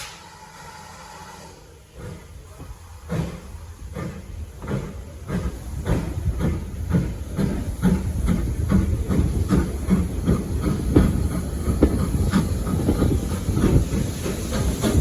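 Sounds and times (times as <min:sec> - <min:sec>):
steam hiss: 0:00.0 - 0:15.0
locomotive low rumble: 0:00.6 - 0:15.0.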